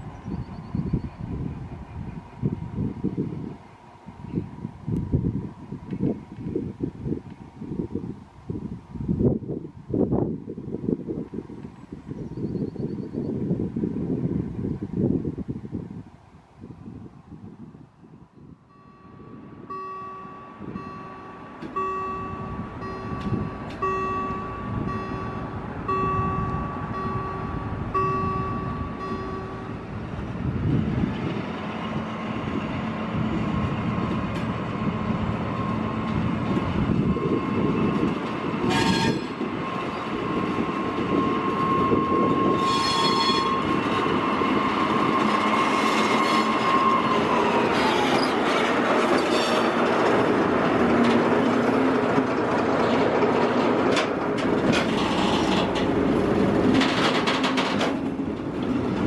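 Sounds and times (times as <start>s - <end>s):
diesel locomotive engine: 0.0s - 59.0s
warning bell dinging: 18.7s - 29.9s
train wheels squealing: 36.9s - 49.8s, 54.7s - 55.9s.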